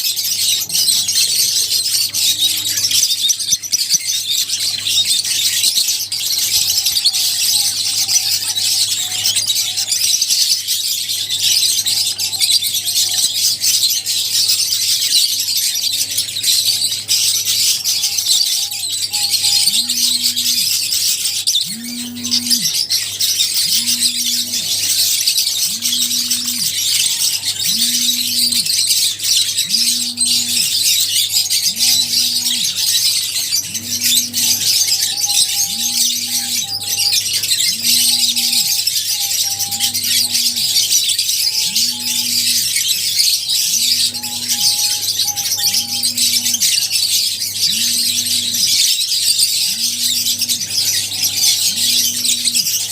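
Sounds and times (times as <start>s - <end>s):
birds chirping shrilly: 0.0s - 52.9s.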